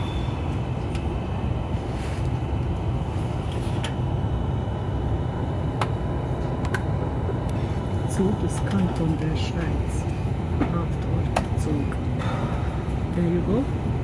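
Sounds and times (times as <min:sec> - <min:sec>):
train rumble: 0:00.0 - 0:14.0.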